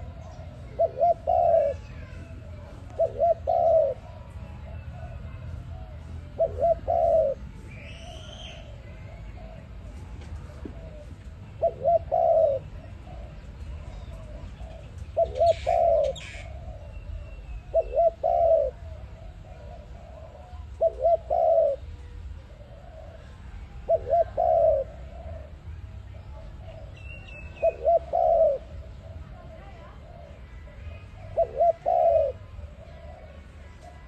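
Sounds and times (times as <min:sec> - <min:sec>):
dove cooing: 0:00.0 - 0:34.0
high bird chirp: 0:06.4 - 0:08.8.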